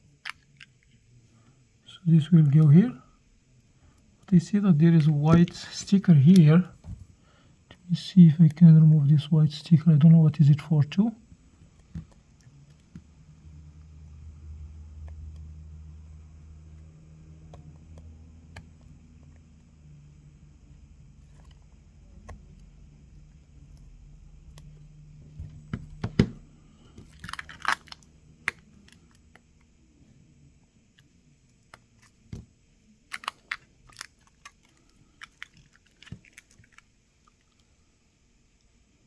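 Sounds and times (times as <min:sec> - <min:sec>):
clicks of phone parts handled: 0:27.0 - 0:29.2, 0:33.1 - 0:36.8.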